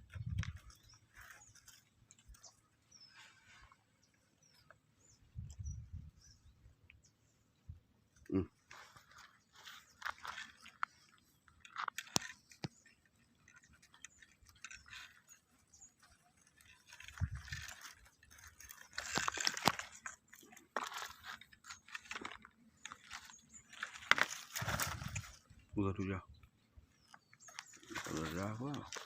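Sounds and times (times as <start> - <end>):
crunching and rustling: 0.0 - 5.6, 8.1 - 29.0.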